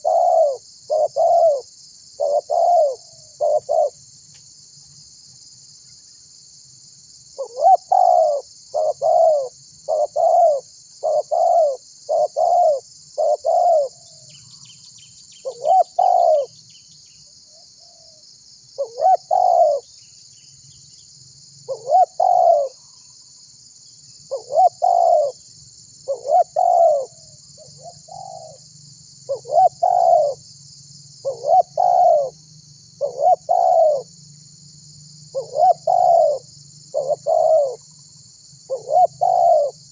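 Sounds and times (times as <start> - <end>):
dove cooing: 0.0 - 4.0, 7.4 - 14.2, 15.4 - 16.5, 18.8 - 19.9, 21.7 - 22.8, 24.3 - 25.4, 26.0 - 28.6, 29.3 - 30.4, 31.2 - 32.4, 33.0 - 34.1, 35.3 - 38.0, 38.7 - 39.9.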